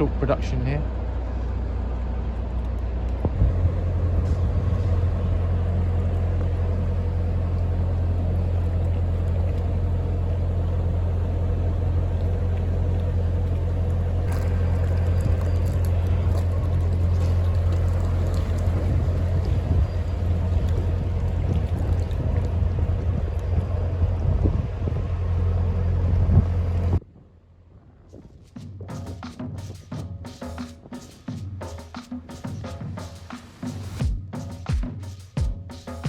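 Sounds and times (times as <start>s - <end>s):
boat engine humming: 0.0s - 27.6s.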